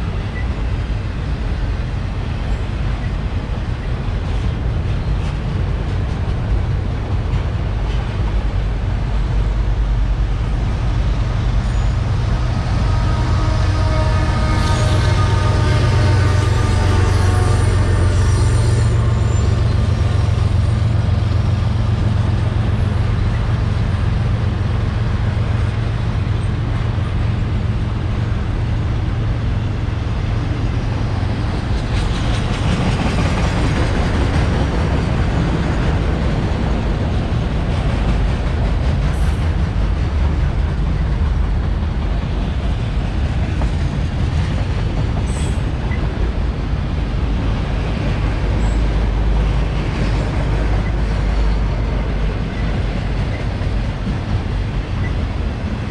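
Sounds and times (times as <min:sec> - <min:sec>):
freight train wheels rumbling on rail: 0:00.0 - 0:55.9.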